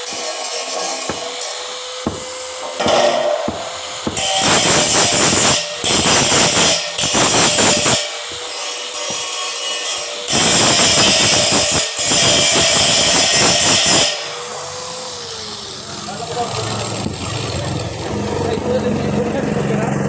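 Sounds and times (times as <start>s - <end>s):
arc welding crackling hiss: 3.4s - 14.2s.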